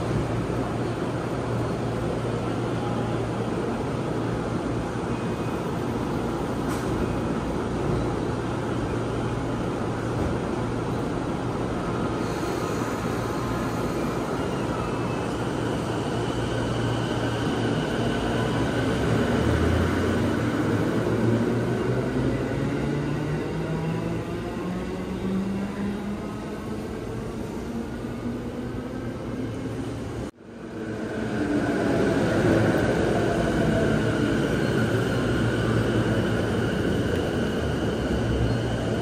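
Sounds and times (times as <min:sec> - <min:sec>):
train doors closing: 0:06.3 - 0:07.4.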